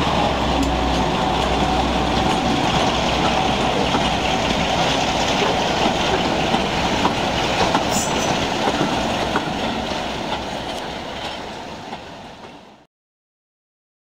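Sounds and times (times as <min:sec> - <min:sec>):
train wheels clicking over rail joints: 0:00.0 - 0:12.6.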